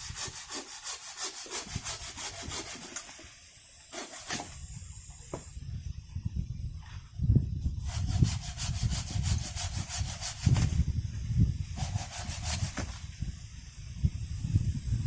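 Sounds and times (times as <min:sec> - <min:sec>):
rasping strokes on wood: 0:00.0 - 0:03.2, 0:03.9 - 0:04.5, 0:07.8 - 0:10.8, 0:11.8 - 0:13.0.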